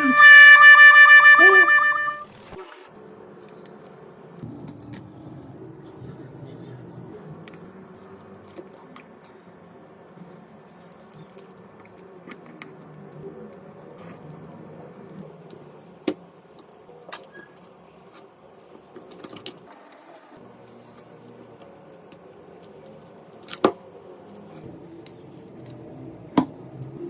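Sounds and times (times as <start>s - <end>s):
small tools clicking and tapping: 2.9s - 5.0s, 7.5s - 9.4s, 10.3s - 27.0s.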